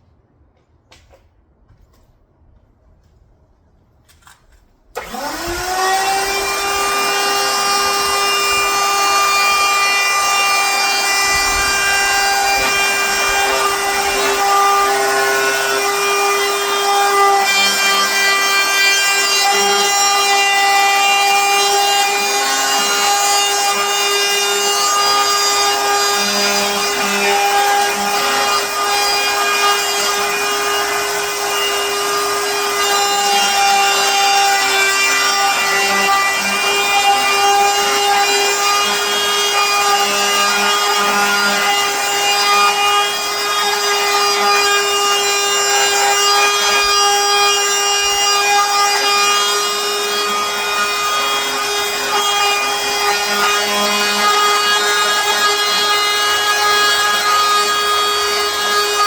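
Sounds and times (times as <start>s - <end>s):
electric router whining: 5.0s - 59.0s
wood rasping: 5.0s - 59.0s.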